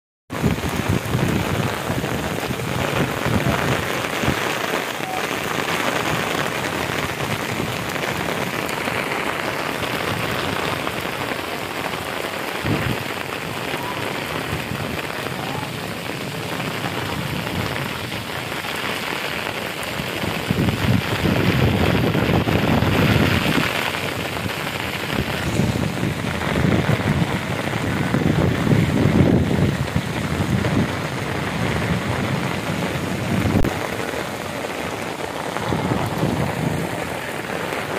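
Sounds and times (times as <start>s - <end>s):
heavy rain on wet ground: 0.3s - 37.9s.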